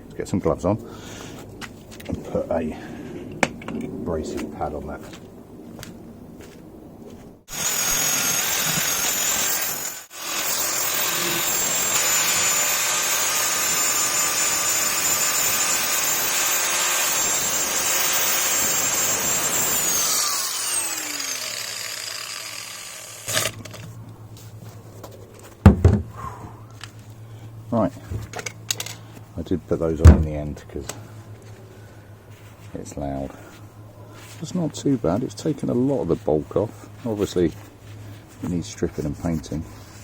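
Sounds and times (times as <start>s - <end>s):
power tool sanding metal: 7.5s - 23.6s.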